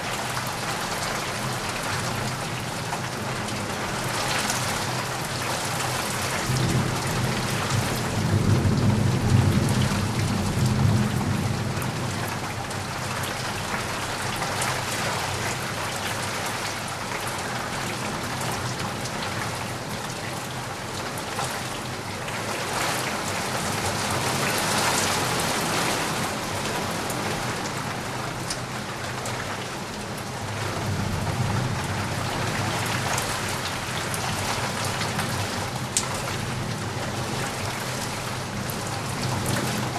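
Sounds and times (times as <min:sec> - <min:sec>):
heavy rain pattering: 0:00.0 - 0:39.9
low rumble of thunder: 0:06.1 - 0:14.2, 0:30.3 - 0:39.9.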